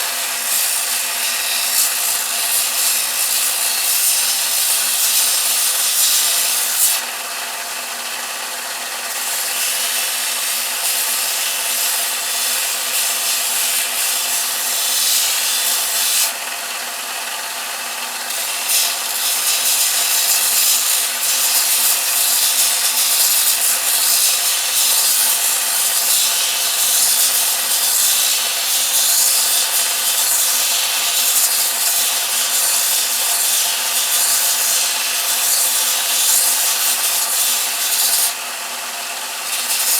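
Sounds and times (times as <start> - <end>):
belt sander sanding wood: 0.0 - 39.9.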